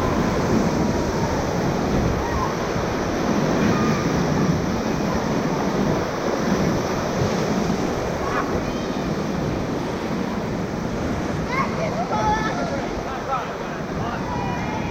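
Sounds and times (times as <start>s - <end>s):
whitewater rapids rushing: 0.0s - 14.9s
wind noise on microphone: 0.0s - 14.9s.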